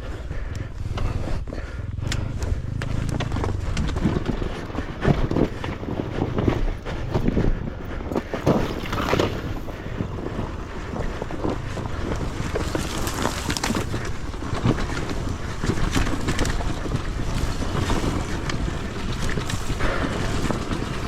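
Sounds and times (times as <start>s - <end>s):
dirt bike engine: 0.0s - 21.0s
wind buffeting microphone: 0.0s - 21.0s
knocks and rattles: 2.2s - 21.0s.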